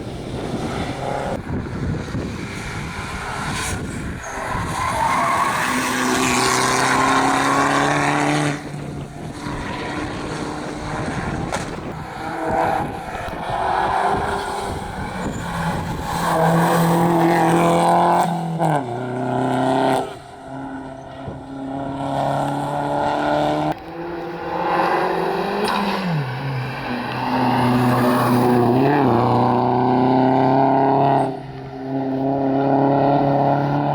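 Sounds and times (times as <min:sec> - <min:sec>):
rally car engines revving: 0:00.0 - 0:33.9.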